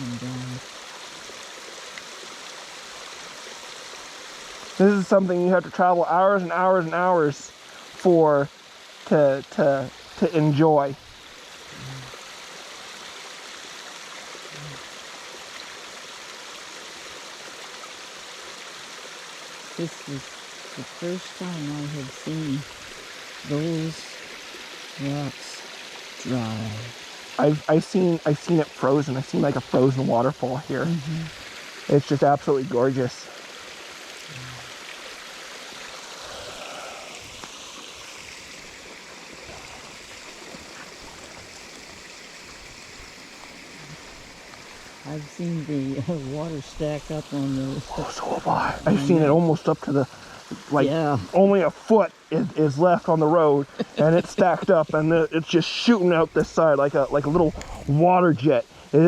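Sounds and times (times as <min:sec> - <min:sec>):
stream water running over rocks: 0:00.0 - 0:59.0.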